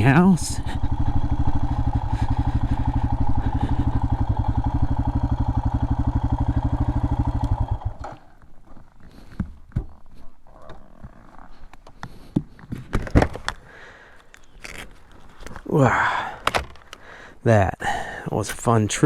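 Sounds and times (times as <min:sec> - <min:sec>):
motorcycle engine idling: 0:00.0 - 0:09.3.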